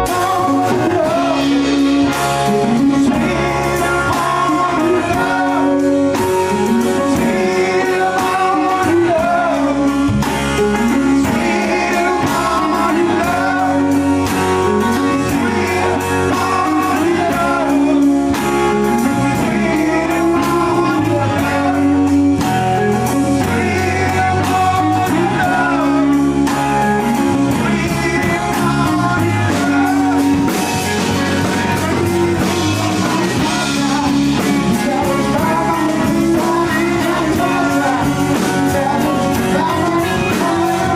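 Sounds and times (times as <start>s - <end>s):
blues-rock band playing: 0.0s - 40.9s
person singing: 0.0s - 40.9s.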